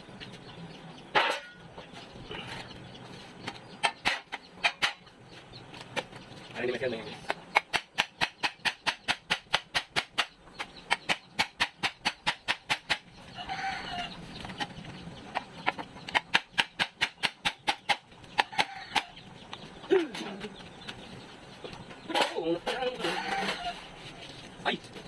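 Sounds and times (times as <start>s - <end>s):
rooster crowing: 13.4s - 14.2s, 18.4s - 19.2s, 22.8s - 24.0s.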